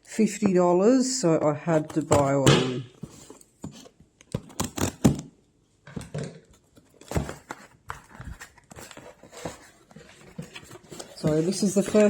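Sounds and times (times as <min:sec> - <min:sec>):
cardboard and packaging rustling: 0:03.0 - 0:05.2, 0:06.3 - 0:12.0.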